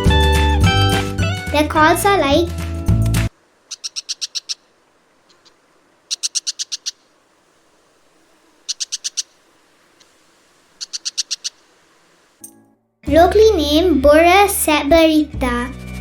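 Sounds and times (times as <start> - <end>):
bird harsh chattering call: 3.7 - 4.7, 5.3 - 7.1, 8.6 - 9.5, 10.8 - 11.7.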